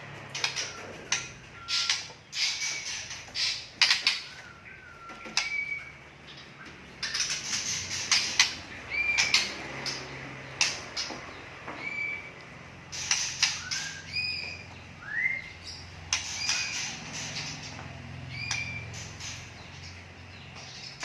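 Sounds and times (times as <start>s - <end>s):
bird chattering song: 0.0s - 21.0s
bird whistles: 0.4s - 6.0s, 13.0s - 16.9s.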